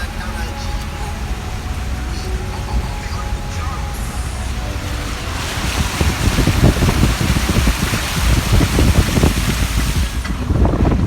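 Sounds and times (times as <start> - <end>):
low rumble: 0.0 - 11.0
water rushing on street: 0.0 - 11.0.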